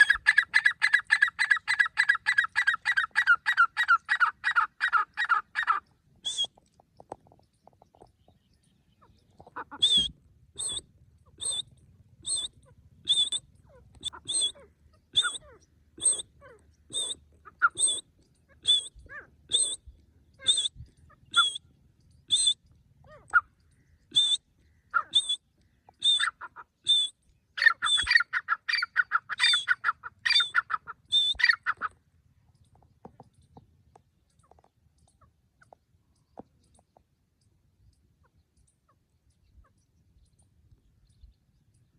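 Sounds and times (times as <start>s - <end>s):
francolin calling: 0.0s - 6.5s, 8.8s - 32.0s.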